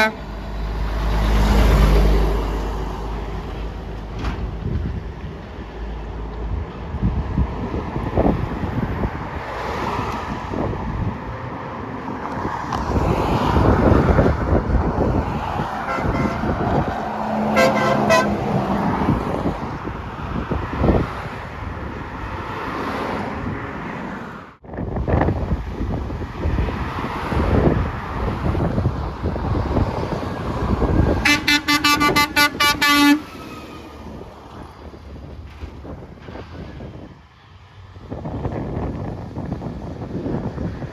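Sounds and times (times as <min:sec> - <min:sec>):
truck air horn blasts: 0:00.0 - 0:00.4, 0:15.8 - 0:16.7, 0:17.4 - 0:18.6, 0:31.1 - 0:33.9
vehicle passing: 0:00.0 - 0:03.9, 0:07.0 - 0:36.0
road traffic: 0:00.0 - 0:40.9
wind buffeting microphone: 0:00.0 - 0:40.9.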